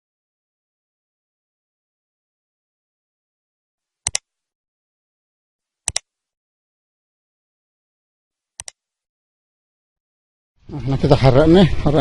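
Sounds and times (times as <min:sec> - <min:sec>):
sharp double clicks: 0:04.0 - 0:04.3, 0:05.8 - 0:06.2, 0:08.6 - 0:08.8.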